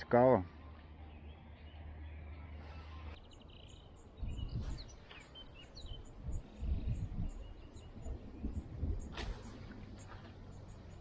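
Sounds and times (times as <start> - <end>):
small birds chirping: 0.0 - 11.0
wind gusting on microphone: 4.1 - 10.0.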